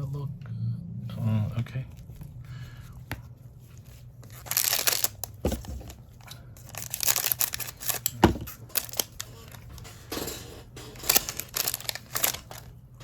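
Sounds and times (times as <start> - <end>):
wrapper tearing and crinkling: 3.8 - 9.9, 11.0 - 12.7.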